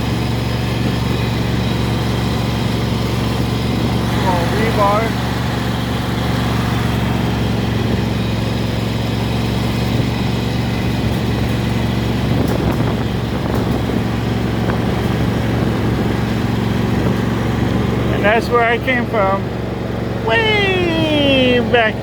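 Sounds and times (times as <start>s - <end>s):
engine drone: 0.0s - 22.0s.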